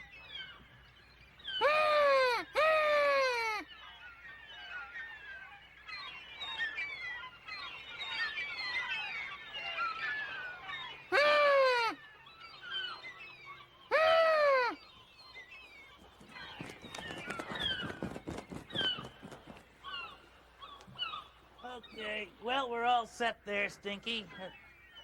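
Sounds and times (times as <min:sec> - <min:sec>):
seagull drawn-out calls: 0:01.5 - 0:03.9, 0:06.4 - 0:15.0
faint quick chirping calls: 0:14.8 - 0:22.5.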